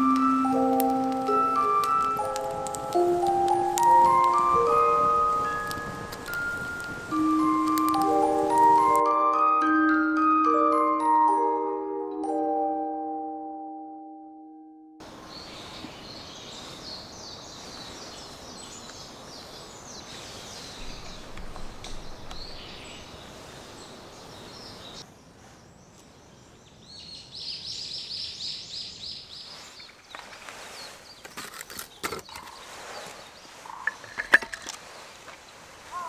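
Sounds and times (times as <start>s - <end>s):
birds singing in high trills: 0.0s - 9.0s, 15.0s - 25.0s
sharp clicks: 0.0s - 9.0s
steady background hiss: 0.0s - 9.0s, 15.0s - 31.2s.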